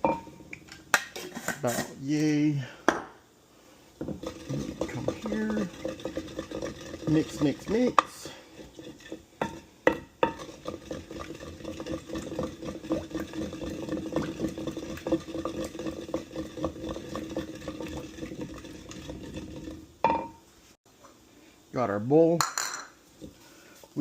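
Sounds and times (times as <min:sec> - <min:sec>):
sauce being stirred and scraped: 0:01.1 - 0:02.0, 0:04.0 - 0:20.0.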